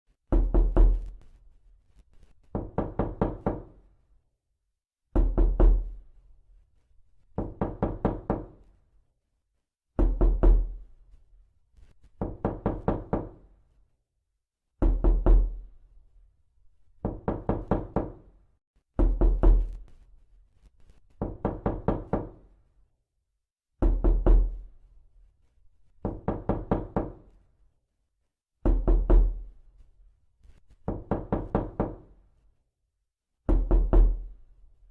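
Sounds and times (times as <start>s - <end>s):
knocking on door: 0.3s - 1.1s, 2.5s - 3.8s, 5.2s - 5.9s, 7.4s - 8.6s, 10.0s - 10.8s, 12.2s - 13.4s, 14.8s - 15.6s, 17.0s - 18.3s, 19.0s - 19.8s, 21.2s - 22.4s, 23.8s - 24.6s, 26.0s - 27.2s, 28.6s - 29.4s, 30.8s - 32.0s, 33.5s - 34.3s.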